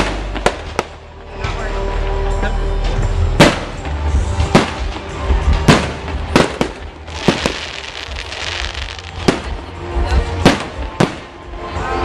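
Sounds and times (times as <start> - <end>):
fireworks crackling: 0.0 - 1.2, 3.4 - 11.5
background music: 0.0 - 12.0
fireworks bangs: 3.4 - 11.4.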